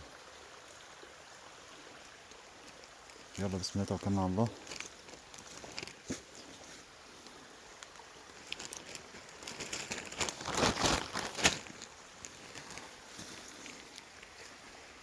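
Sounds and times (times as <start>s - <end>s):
faint steady hiss: 0.0s - 15.0s
footsteps crunching on rocky ground: 3.2s - 6.9s, 8.3s - 14.5s.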